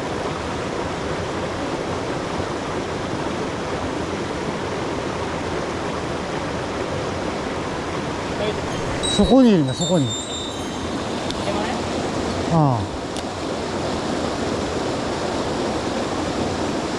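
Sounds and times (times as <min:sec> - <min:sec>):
mountain stream rushing: 0:00.0 - 0:16.9.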